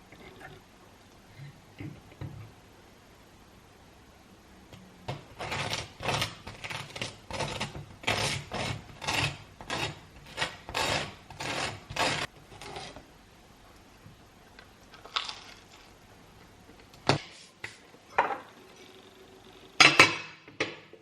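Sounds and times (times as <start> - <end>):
rasping scraping strokes: 5.3 - 13.0.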